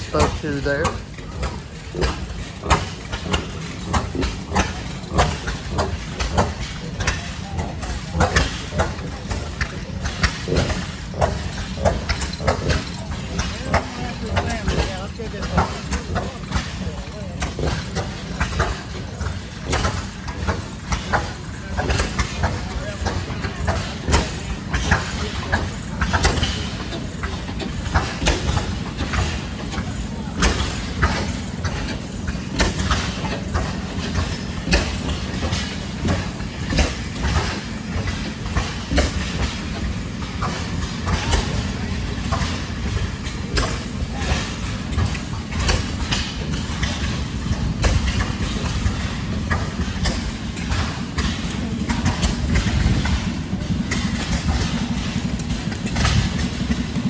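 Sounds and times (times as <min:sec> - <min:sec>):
stationary gas engines running: 0:00.0 - 0:57.0.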